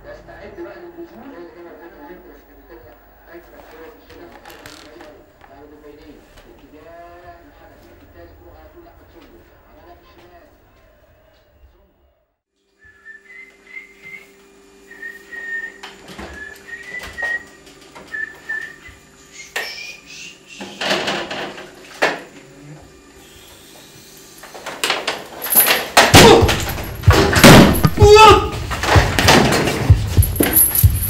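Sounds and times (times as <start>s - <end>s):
person whistling a slow tune: 12.8s - 20.7s.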